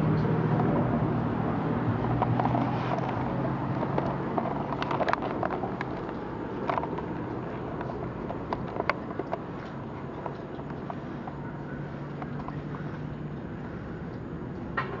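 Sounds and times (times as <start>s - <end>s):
vehicle engine humming: 0.0s - 15.0s
light clicks and taps: 2.0s - 13.2s.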